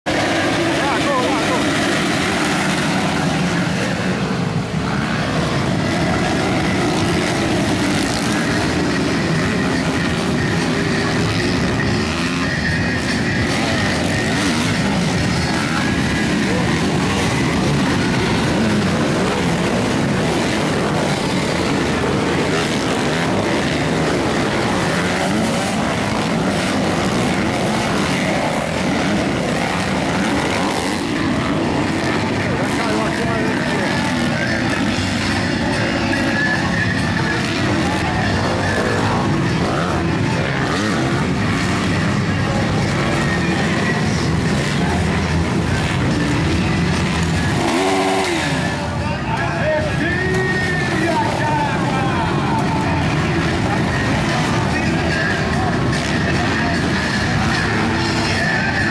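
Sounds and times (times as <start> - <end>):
dirt bike engines buzzing: 0.0 - 58.9.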